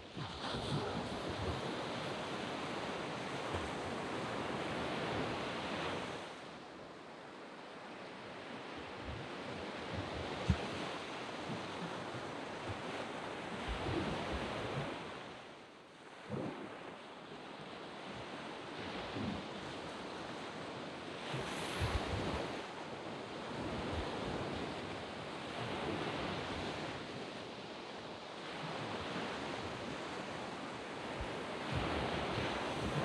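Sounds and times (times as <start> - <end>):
sea waves breaking on beach: 0.0 - 6.4, 17.8 - 27.4, 28.4 - 33.0.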